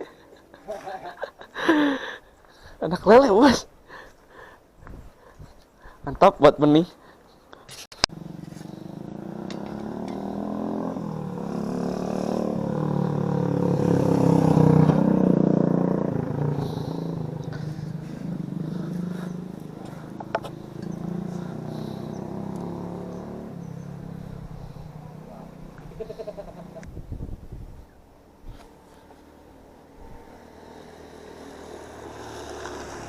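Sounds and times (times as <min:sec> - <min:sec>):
motorcycle passing by: 0:08.1 - 0:27.3, 0:28.2 - 0:33.0.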